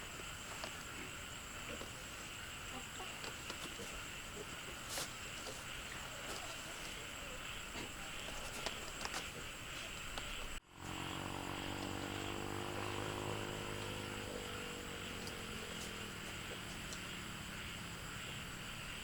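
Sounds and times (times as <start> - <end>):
high outdoor hiss: 0.0 - 19.0.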